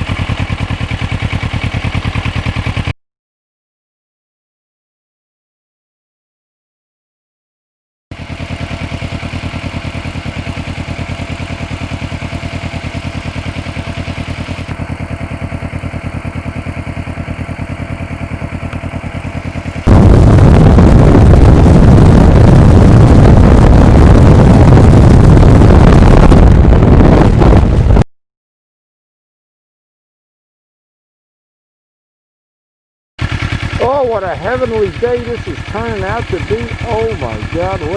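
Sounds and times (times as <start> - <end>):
motorcycle engine idling: 0.0 - 2.9, 8.1 - 24.1, 33.2 - 37.9.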